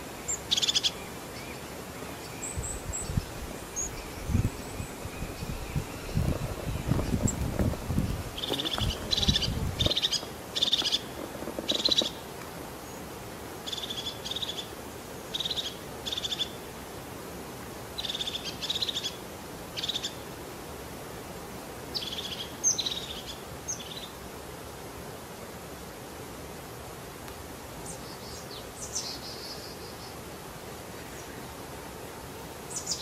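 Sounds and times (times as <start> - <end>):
wind rumbling on microphone: 2.4 - 12.8
bird calling with raspy rattling notes: 3.7 - 12.3.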